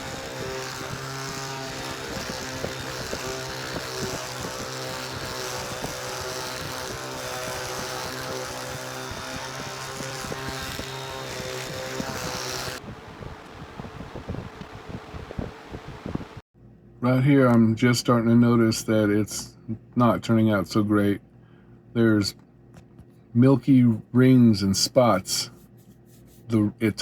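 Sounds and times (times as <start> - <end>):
electric polisher running: 0.0 - 12.8.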